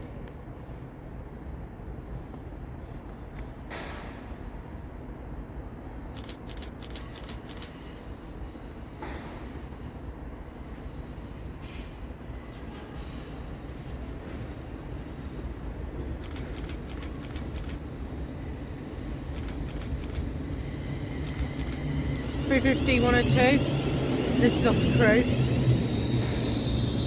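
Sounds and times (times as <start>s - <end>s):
train low rumble: 0.0s - 27.0s
sharp clicks: 6.1s - 7.7s, 16.2s - 17.8s, 19.3s - 20.3s, 21.2s - 21.8s.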